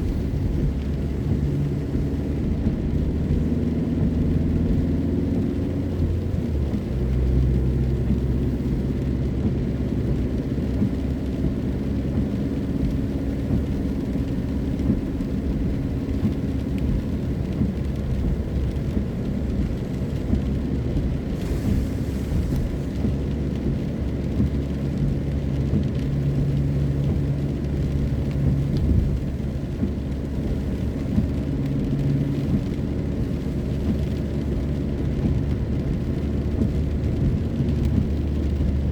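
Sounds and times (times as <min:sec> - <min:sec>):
car engine and road rumble: 0:00.0 - 0:38.9
brief hiss: 0:21.4 - 0:22.8.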